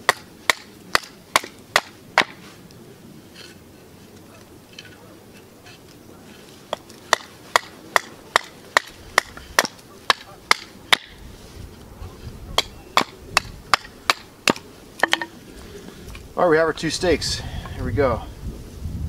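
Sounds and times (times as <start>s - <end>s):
hatchet chopping wood: 0.0s - 2.4s, 6.7s - 11.2s, 12.6s - 15.3s.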